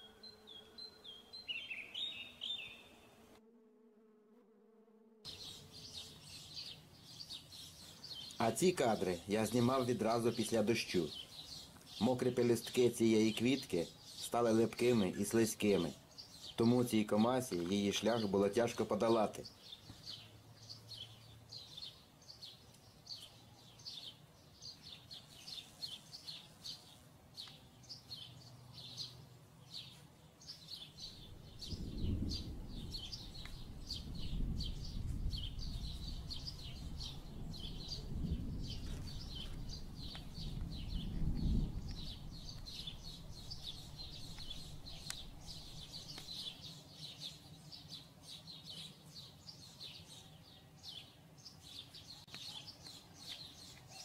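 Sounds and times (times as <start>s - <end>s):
small birds chirping: 0.0s - 3.1s, 5.3s - 54.0s
low rumble: 31.2s - 46.1s.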